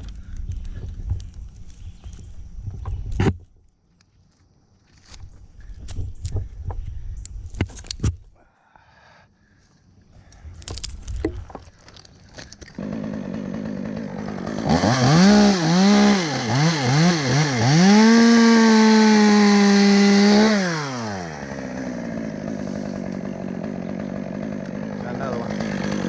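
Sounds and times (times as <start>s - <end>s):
chainsaw engine revving: 12.7s - 26.0s.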